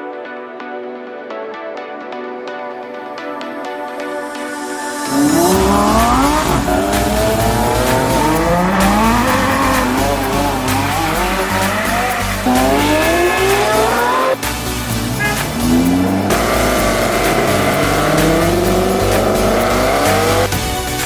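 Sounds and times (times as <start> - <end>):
intro music: 0.0 - 21.0
sports car engine accelerating: 5.1 - 20.5.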